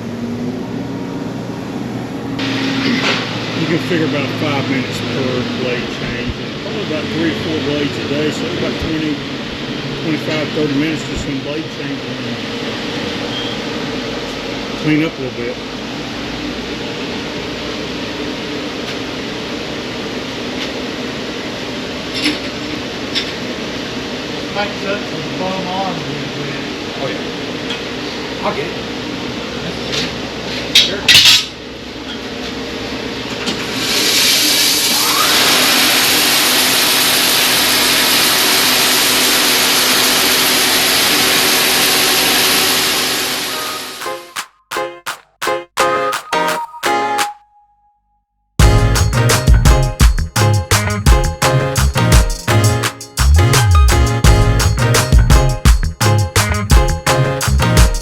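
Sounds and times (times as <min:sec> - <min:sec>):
machine running: 0:34.6 - 0:44.4.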